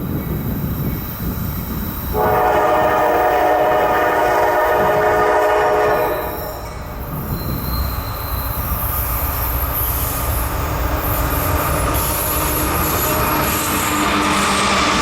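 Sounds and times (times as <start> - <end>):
train rumbling on rails: 0.0 - 15.0
high-pitched wheel squeal: 5.8 - 14.8.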